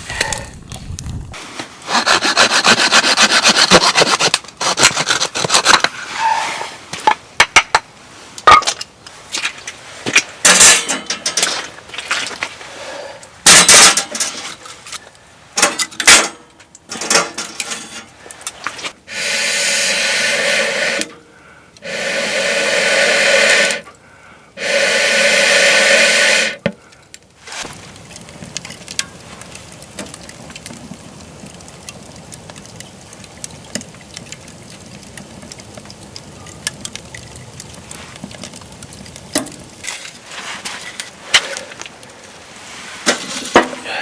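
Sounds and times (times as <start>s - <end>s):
firewood knocking and cracking: 0.1s - 6.0s, 6.9s - 12.6s, 26.6s - 42.4s, 43.0s - 43.8s
long rasping strokes: 1.8s - 6.8s, 19.1s - 21.1s, 21.8s - 23.9s, 24.6s - 26.6s.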